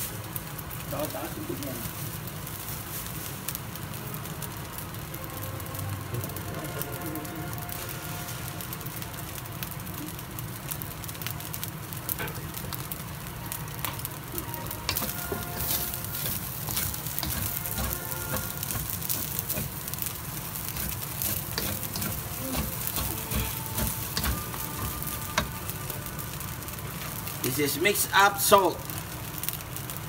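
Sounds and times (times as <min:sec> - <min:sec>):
fried rice sizzling in a wok: 0:00.0 - 0:30.0
spatula scraping and knocking pan: 0:14.8 - 0:25.5.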